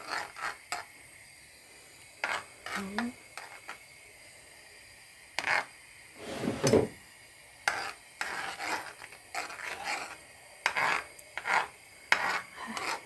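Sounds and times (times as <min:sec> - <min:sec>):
utensil scraping and knocking cookware: 0:05.4 - 0:07.0, 0:07.7 - 0:13.0.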